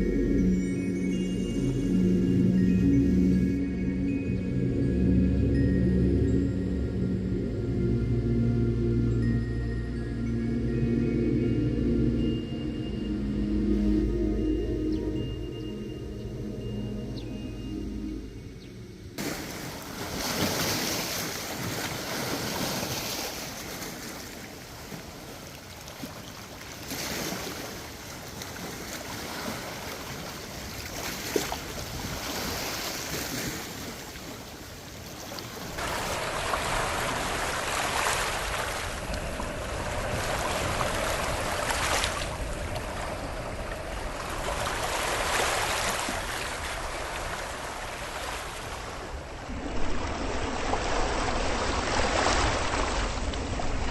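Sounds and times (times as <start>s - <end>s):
wind: 0.0s - 53.9s
small waves washing ashore: 19.2s - 53.9s.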